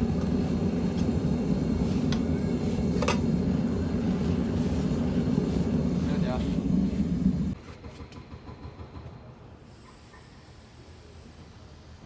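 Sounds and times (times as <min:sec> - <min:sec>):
gas furnace burner rushing: 0:00.0 - 0:07.6.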